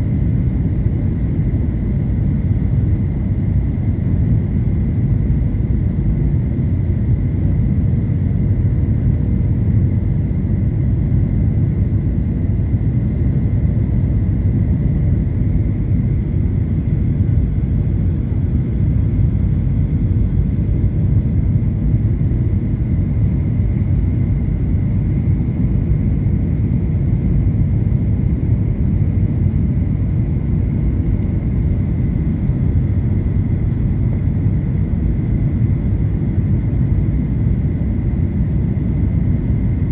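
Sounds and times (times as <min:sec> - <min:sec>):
jet engines rumbling: 0:08.2 - 0:39.9.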